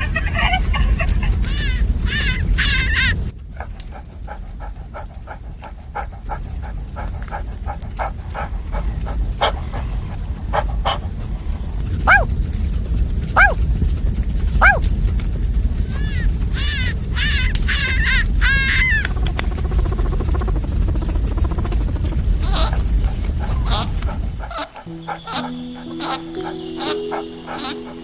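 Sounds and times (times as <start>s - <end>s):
steady low rumble: 0.0s - 25.3s
dog yipping and yelping: 4.3s - 11.1s, 12.0s - 12.3s, 13.4s - 13.6s, 14.6s - 14.9s, 16.0s - 28.0s.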